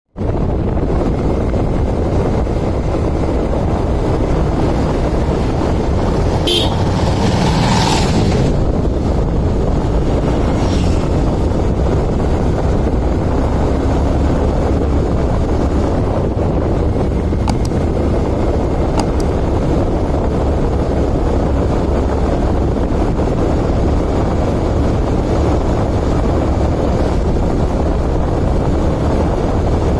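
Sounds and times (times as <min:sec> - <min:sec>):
wind rumble on microphone: 0:00.1 - 0:29.9
traffic noise: 0:00.2 - 0:29.9
short vehicle horn: 0:06.4 - 0:07.0.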